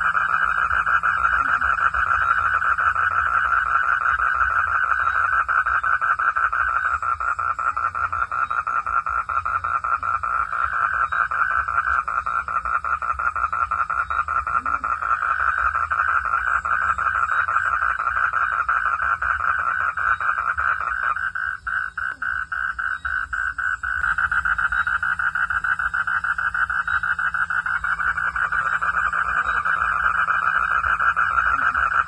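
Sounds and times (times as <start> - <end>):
frogs calling: 0.0 - 32.0.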